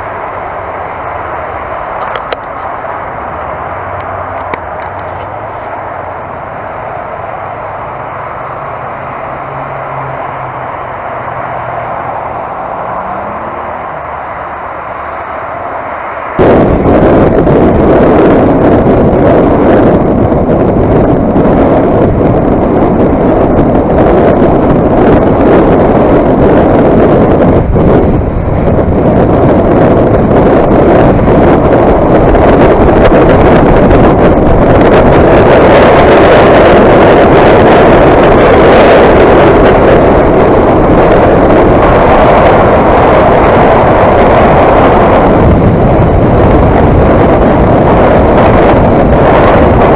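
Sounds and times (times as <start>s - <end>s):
motorcycle engine at speed: 0.0s - 49.9s
road noise: 0.0s - 49.9s
wind buffeting on microphone: 0.0s - 49.9s.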